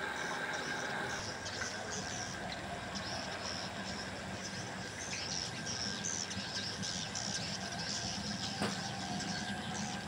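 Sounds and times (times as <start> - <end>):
low hum of traffic: 0.0 - 10.0
small birds chirping: 0.1 - 10.0.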